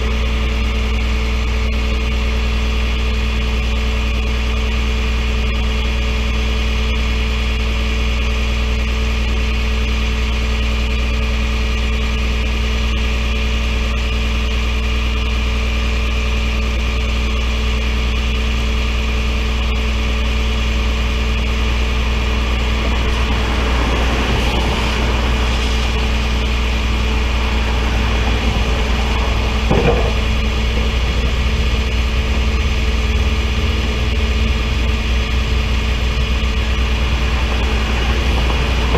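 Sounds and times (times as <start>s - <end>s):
vehicle engine idling: 0.0s - 38.9s
rushing sound: 22.2s - 38.9s
short knock: 29.7s - 30.9s.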